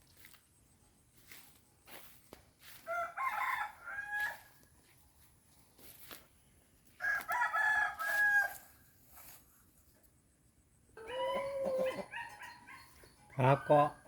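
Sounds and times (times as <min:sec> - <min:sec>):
rooster crowing: 0:02.7 - 0:04.6, 0:07.0 - 0:08.7, 0:11.0 - 0:13.9.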